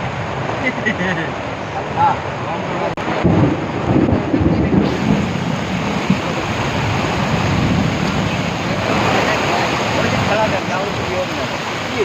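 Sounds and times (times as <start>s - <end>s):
pouring rain hissing: 0.0s - 12.0s
low rumble: 3.0s - 11.1s.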